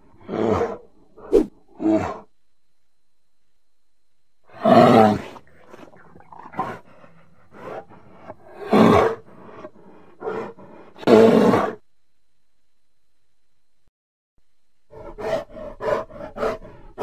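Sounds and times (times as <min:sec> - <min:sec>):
bear growling and grunting: 0:00.0 - 0:02.3, 0:04.5 - 0:11.8, 0:14.9 - 0:17.0
bear roaring: 0:00.0 - 0:02.3, 0:04.5 - 0:11.8, 0:14.9 - 0:17.0.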